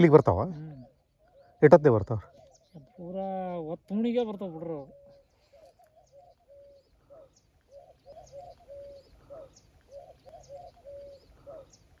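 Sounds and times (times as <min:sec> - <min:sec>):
bird calling low phrase: 0:00.0 - 0:12.0
small birds chirping: 0:00.0 - 0:12.0.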